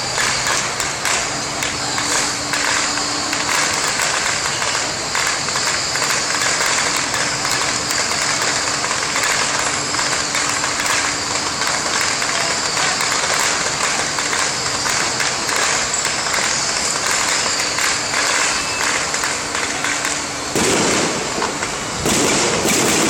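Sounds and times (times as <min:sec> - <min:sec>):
firecrackers popping: 0:00.0 - 0:23.0.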